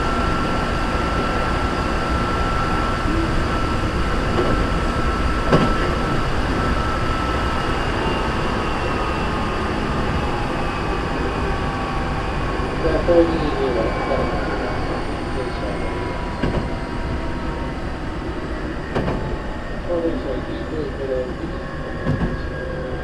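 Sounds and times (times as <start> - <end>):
sustained high tone: 0.0 - 22.0
train wheels rumbling on rail: 0.0 - 23.0.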